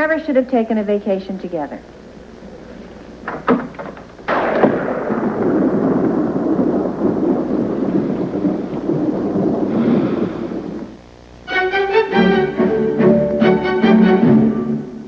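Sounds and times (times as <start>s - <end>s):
thunder crack and rumble: 2.0s - 11.2s.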